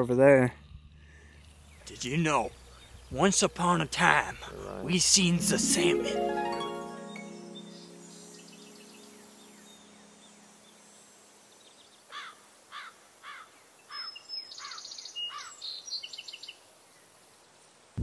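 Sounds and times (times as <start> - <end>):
bird chirping: 0.0 - 12.1
background music: 3.2 - 10.8.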